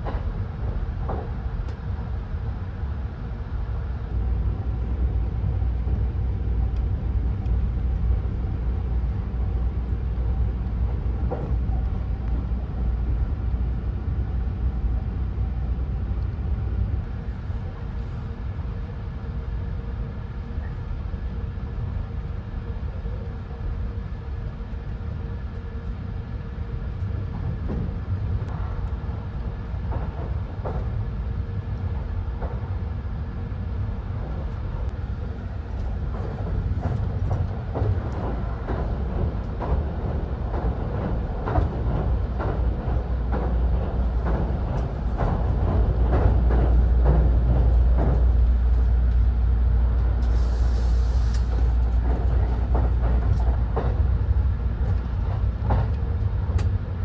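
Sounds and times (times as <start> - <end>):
train cabin rumble: 0.0 - 57.0.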